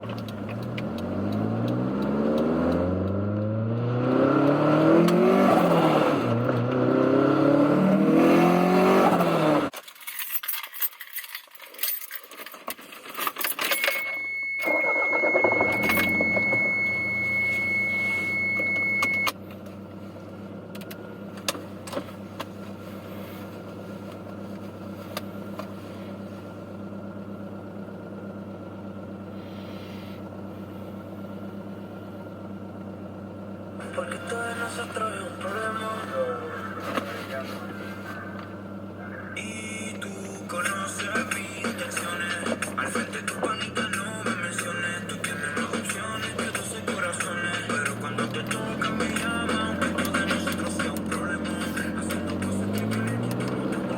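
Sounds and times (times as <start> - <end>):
car engine accelerating: 0.0 - 9.7, 14.1 - 53.9
steady high tone: 13.7 - 19.3.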